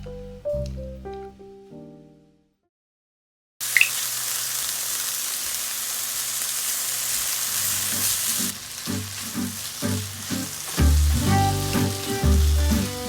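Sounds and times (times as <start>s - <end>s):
background music with low beat: 0.0s - 1.4s, 10.8s - 13.0s
food sizzling in a frying pan: 3.6s - 13.0s.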